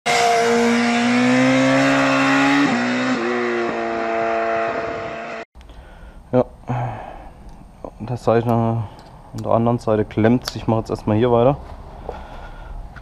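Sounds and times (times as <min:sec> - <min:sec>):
motorcycle engine revving: 0:00.1 - 0:05.5.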